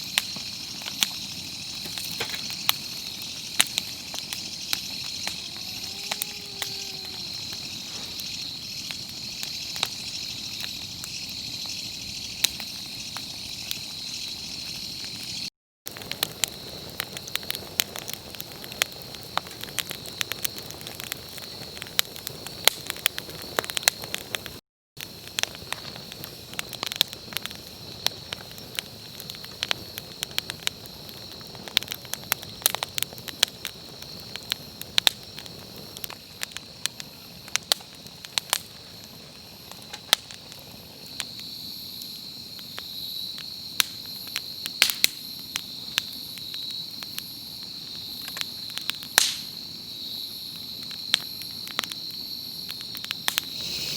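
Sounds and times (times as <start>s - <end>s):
campfire crackling and popping: 0.0s - 53.9s
insects trilling: 0.0s - 53.9s.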